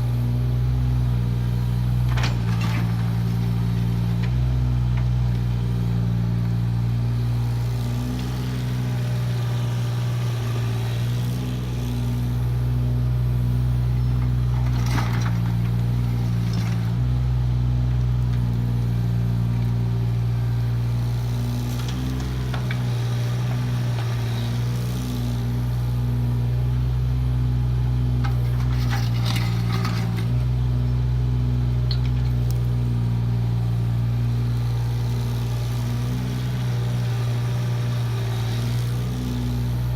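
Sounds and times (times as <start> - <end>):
excavator diesel engine running: 0.0 - 39.9
bucket scraping soil: 28.3 - 30.4.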